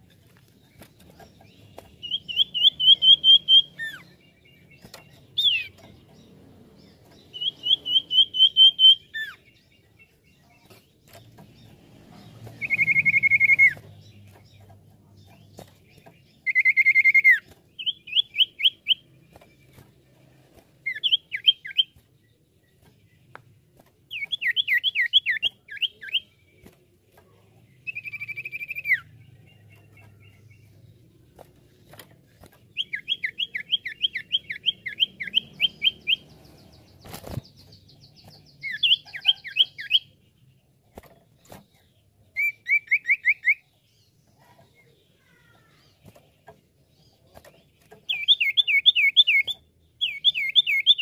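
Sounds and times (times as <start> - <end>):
bird whistling and chirping: 2.0 - 4.1, 5.4 - 5.8, 7.3 - 9.4, 12.6 - 13.8, 16.4 - 19.0, 20.9 - 22.0, 27.9 - 29.1, 32.8 - 36.3, 37.7 - 40.1, 42.4 - 43.6, 48.1 - 51.0.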